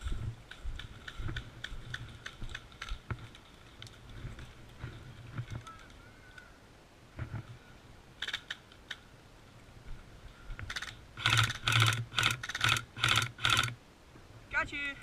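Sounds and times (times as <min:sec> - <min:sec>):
airsoft gun clicks: 0:08.2 - 0:09.0, 0:10.6 - 0:13.8
airsoft gun rapid-fire bursts: 0:10.7 - 0:13.8.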